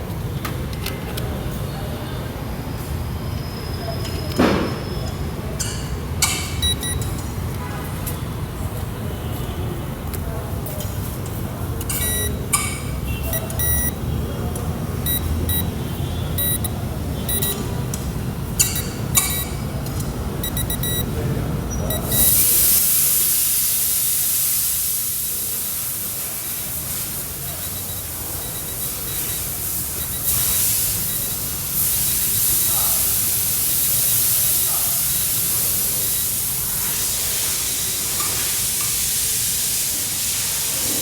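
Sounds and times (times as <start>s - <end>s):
short high beeps: 6.6s - 7.0s, 11.9s - 12.4s, 13.2s - 14.0s, 15.0s - 15.8s, 16.4s - 17.7s, 18.6s - 19.6s, 20.4s - 21.1s, 21.9s - 22.4s, 27.6s - 31.4s
electronic leak detector ticking: 6.6s - 7.2s, 11.8s - 14.0s, 15.0s - 21.2s, 21.9s - 22.8s, 27.4s - 36.7s
hiss of escaping gas: 22.0s - 41.0s.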